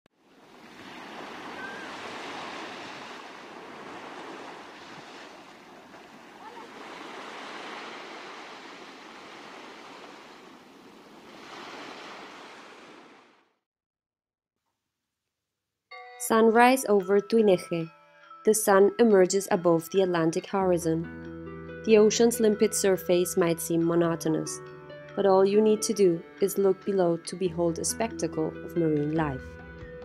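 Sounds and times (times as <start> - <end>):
ocean surf washing in: 0.2 - 13.5.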